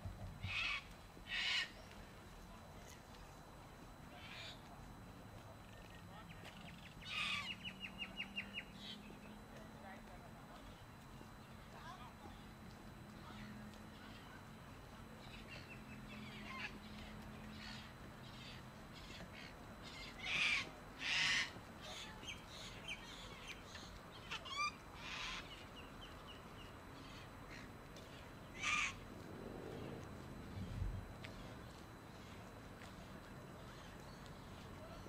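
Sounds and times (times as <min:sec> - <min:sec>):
birds calling: 0:00.4 - 0:02.1, 0:05.7 - 0:09.5, 0:15.1 - 0:35.0.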